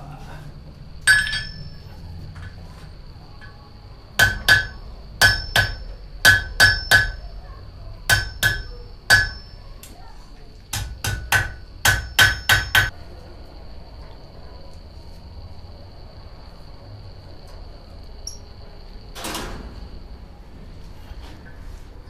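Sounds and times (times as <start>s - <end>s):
hammer striking metal on anvil: 1.1s - 1.9s, 4.2s - 7.2s, 8.1s - 9.7s, 10.7s - 12.9s.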